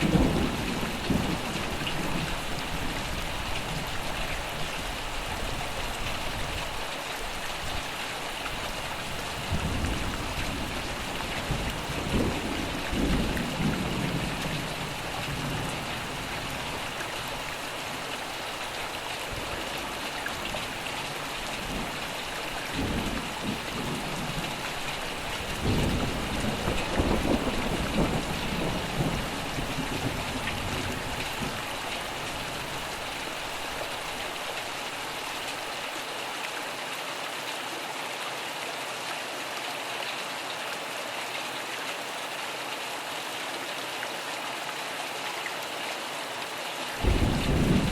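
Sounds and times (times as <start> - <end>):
steady rain falling: 0.0 - 47.9
thunder rumbling: 22.7 - 31.6, 47.0 - 47.9.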